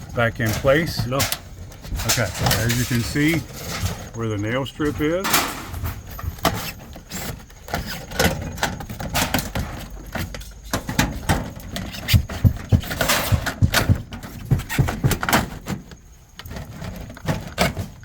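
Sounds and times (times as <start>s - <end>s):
rustling scrape: 0.0s - 13.4s
light metallic clattering: 0.0s - 15.6s
sharp knocks on aluminum siding: 10.8s - 15.8s.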